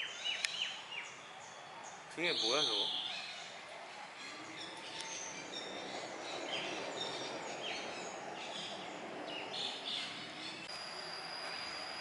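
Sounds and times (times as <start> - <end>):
birds chirping: 0.0 - 12.0
steady background noise: 0.8 - 12.0.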